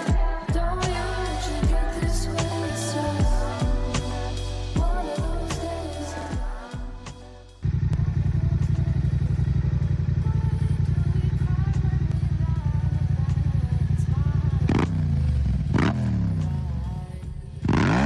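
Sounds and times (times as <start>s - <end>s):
motorcycle engine idling: 7.6s - 15.8s
engine revving: 14.6s - 16.6s, 17.6s - 18.0s.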